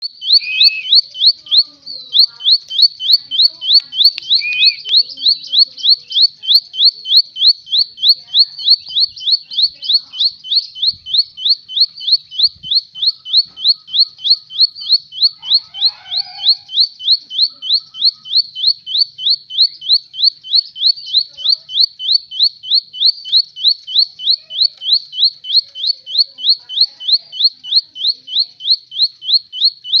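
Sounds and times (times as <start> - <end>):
bird calling high rising notes: 0.2 - 1.0, 4.2 - 4.9.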